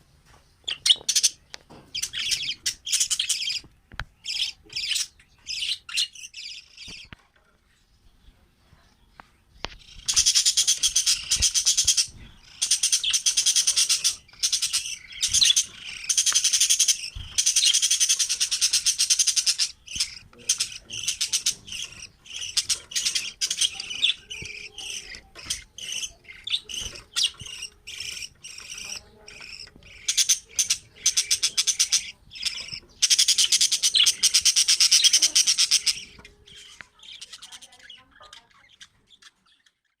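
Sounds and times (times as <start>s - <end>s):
cage birds chattering and chirping: 0.0s - 40.0s.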